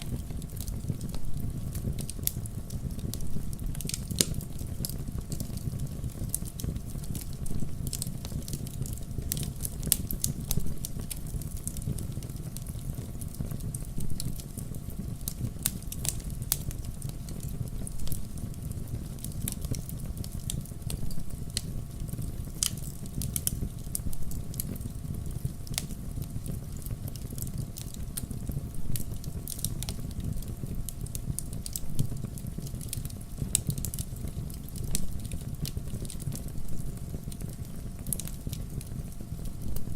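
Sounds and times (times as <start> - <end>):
firewood popping and snapping: 0.0 - 13.2, 13.8 - 39.9
wood fire crackling: 0.0 - 39.9.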